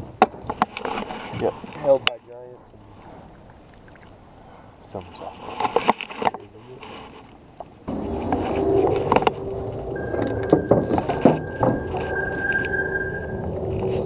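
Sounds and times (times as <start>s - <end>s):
water noise: 0.0s - 14.0s
wind noise: 6.8s - 14.0s
boat motor whining: 7.9s - 14.0s.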